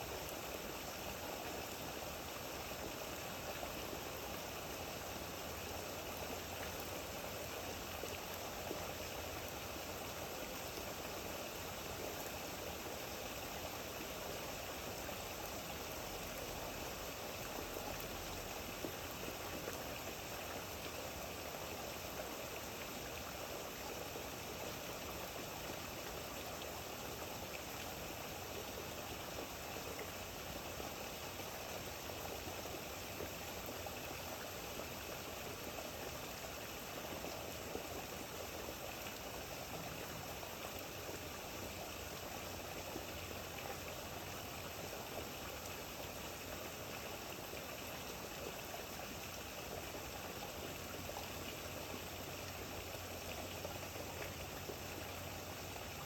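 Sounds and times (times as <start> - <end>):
steady rain falling: 35.6 - 56.0.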